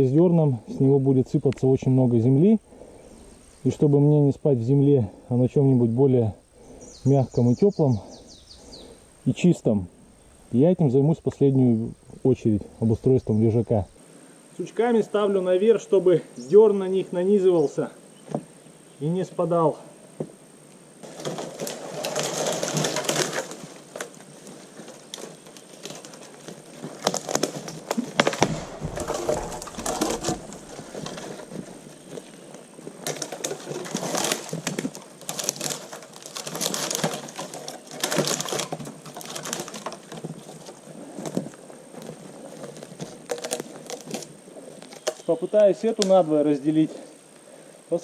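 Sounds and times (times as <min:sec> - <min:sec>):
twigs rustling: 0:20.7 - 0:47.5
wood knocking and snapping: 0:21.0 - 0:32.2, 0:33.0 - 0:45.3.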